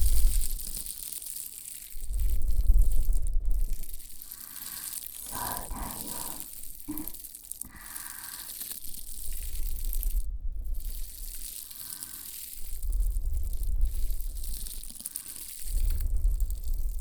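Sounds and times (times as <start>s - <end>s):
deep rumbling bursts: 5.2s - 7.1s
scraping against microphone: 5.2s - 7.2s.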